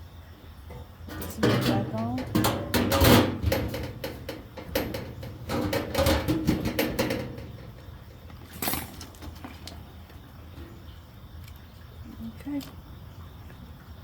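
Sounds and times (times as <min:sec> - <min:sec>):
metal lid clanking and scraping: 0:00.7 - 0:09.6.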